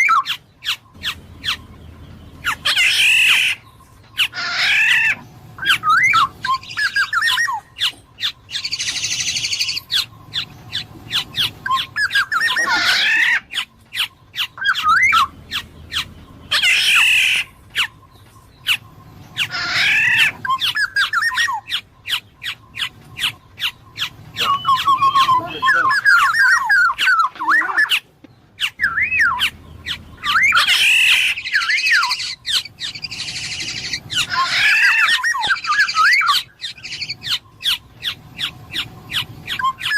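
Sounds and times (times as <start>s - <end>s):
oriole squawks: 0.0s - 1.8s, 2.4s - 39.9s
oriole whistled notes: 14.2s - 27.9s.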